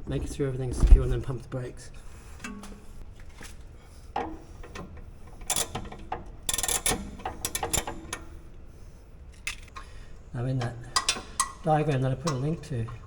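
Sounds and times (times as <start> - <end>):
ratchet handle clicking: 5.4 - 8.3.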